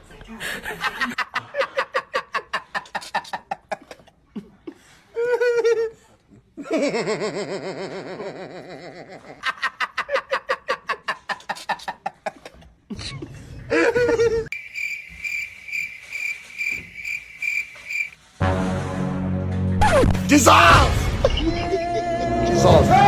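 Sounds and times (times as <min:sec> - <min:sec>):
person laughing: 0:06.6 - 0:14.5, 0:21.2 - 0:22.5.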